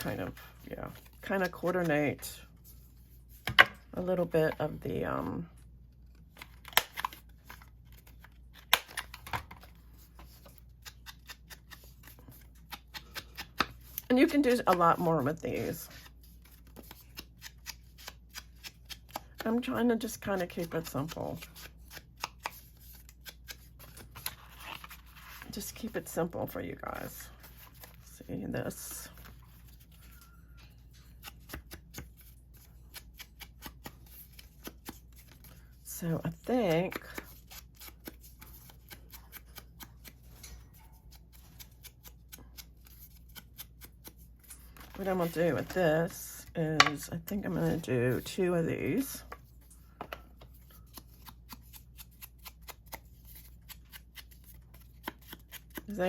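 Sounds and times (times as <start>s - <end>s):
paper cards being shuffled: 6.0s - 30.3s, 36.7s - 40.4s, 41.2s - 46.2s, 49.0s - 56.0s.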